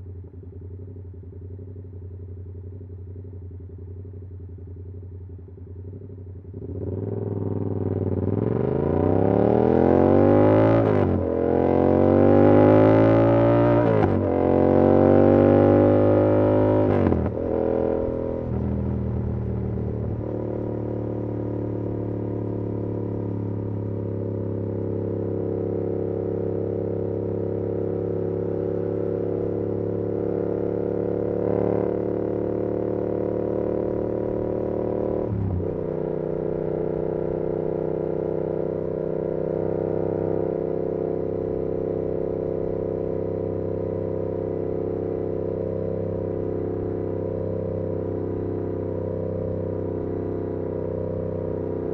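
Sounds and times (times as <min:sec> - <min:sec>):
motorcycle engine cruising: 0:00.0 - 0:51.9.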